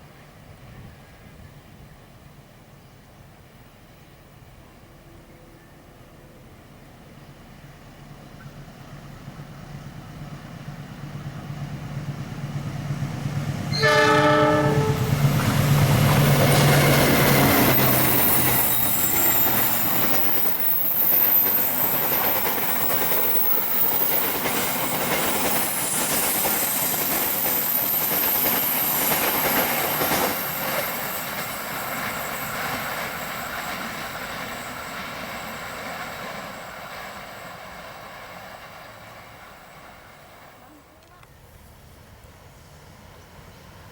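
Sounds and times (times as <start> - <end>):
train wheels clacking: 11.8 - 41.2
train horn blast: 13.7 - 15.2.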